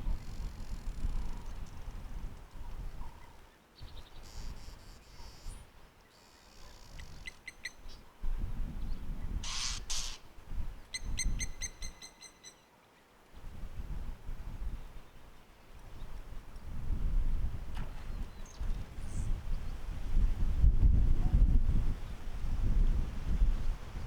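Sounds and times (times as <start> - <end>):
bird harsh rasping calls: 9.4 - 10.2, 11.0 - 12.6.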